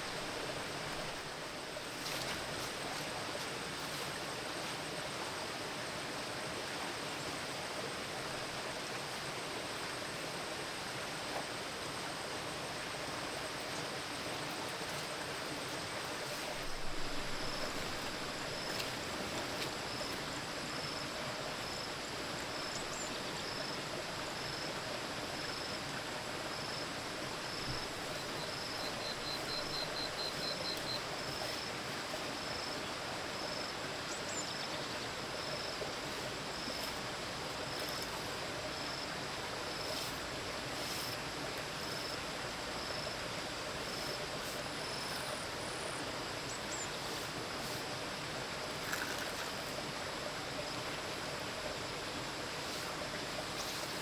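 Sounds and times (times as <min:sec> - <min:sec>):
flowing water rushing: 0:00.0 - 0:54.0
faint high chirp: 0:28.3 - 0:31.6.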